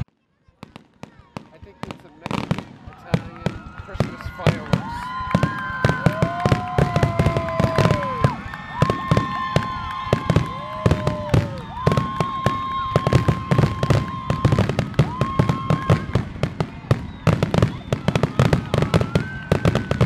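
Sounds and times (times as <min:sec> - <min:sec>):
fireworks crackling and popping: 0:00.0 - 0:20.0.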